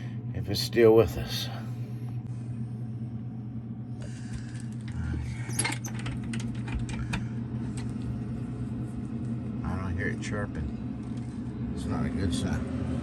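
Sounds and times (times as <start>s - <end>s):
electric hum: 0.0s - 13.0s
small clicks and rattles: 4.3s - 8.1s.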